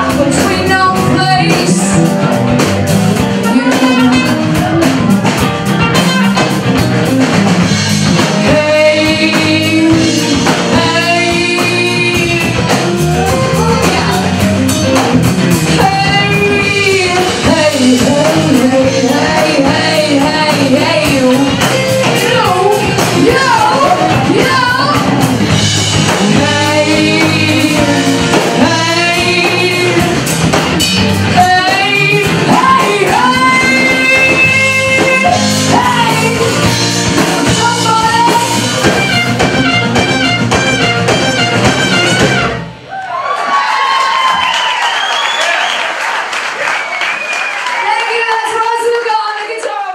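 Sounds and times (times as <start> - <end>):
person singing: 0.0 - 2.3, 3.2 - 6.6, 8.2 - 14.9, 15.7 - 30.5, 31.3 - 39.8
electric guitar: 0.0 - 42.9
drum kit: 0.0 - 49.2.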